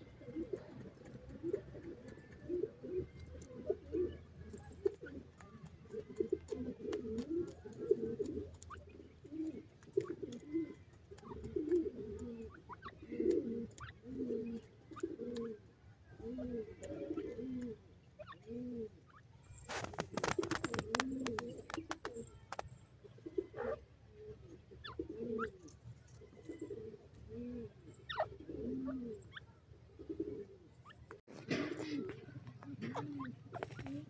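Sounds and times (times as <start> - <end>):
bird cooing: 0.0 - 34.0
crackling rustling noise: 19.5 - 22.8, 31.1 - 34.0.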